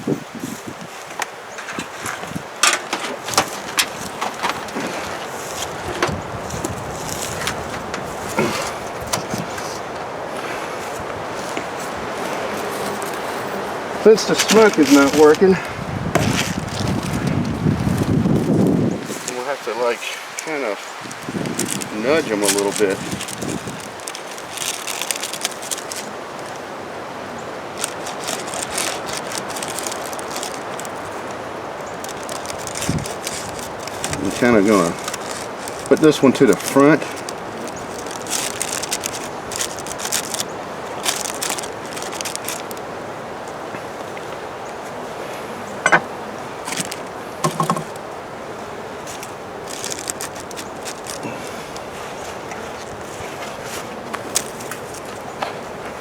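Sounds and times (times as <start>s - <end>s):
wind on microphone: 0.0s - 19.4s, 20.9s - 24.9s, 26.8s - 35.9s
crackling handling noise: 0.0s - 56.0s
light scrapes of beehive parts: 0.3s - 18.1s, 19.0s - 26.6s, 27.8s - 42.8s, 49.0s - 56.0s
wind rushing: 5.6s - 19.2s
sharp knocks: 47.4s - 47.9s.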